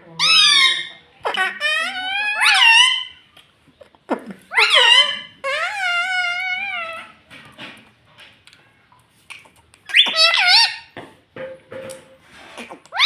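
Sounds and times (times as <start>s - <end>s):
parrot calling and squawking: 0.1s - 3.3s, 4.1s - 7.2s, 9.8s - 11.0s, 12.4s - 13.0s.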